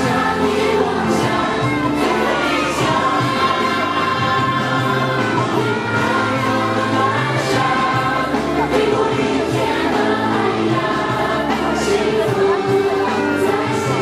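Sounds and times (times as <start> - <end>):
children singing: 0.0 - 14.0
instrumental accompaniment with bass: 0.0 - 14.0.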